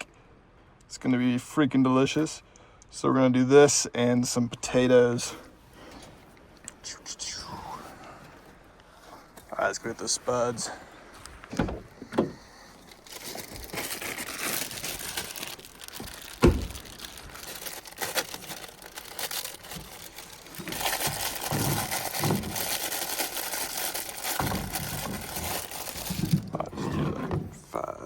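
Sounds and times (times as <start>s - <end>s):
bag rustling and crinkling: 7.8s - 27.3s
dull bumps: 10.6s - 22.9s.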